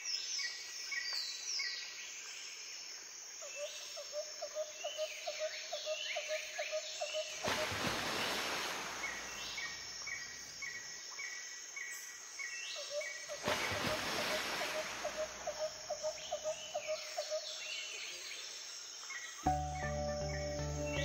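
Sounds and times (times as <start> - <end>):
music: 19.5 - 21.0.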